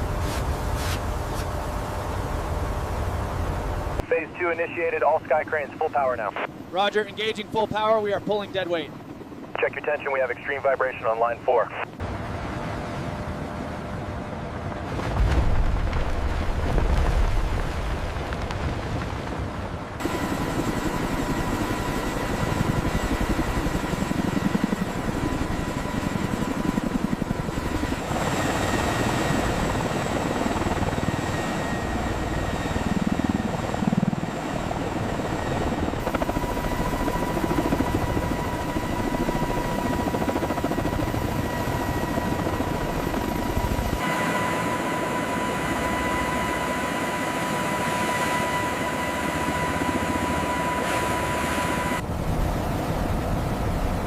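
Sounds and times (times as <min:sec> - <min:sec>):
helicopter rotor beat: 0:00.0 - 0:54.0
high turbine whine: 0:19.9 - 0:54.0.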